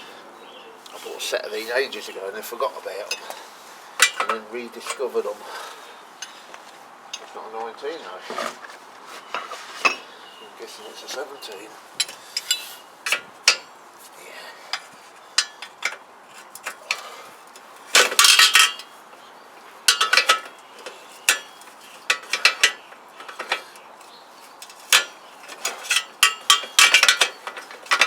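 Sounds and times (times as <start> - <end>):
metal hand tools clinking: 3.0 - 3.4, 4.0 - 5.2, 12.0 - 13.7, 15.4 - 18.9, 19.9 - 28.0.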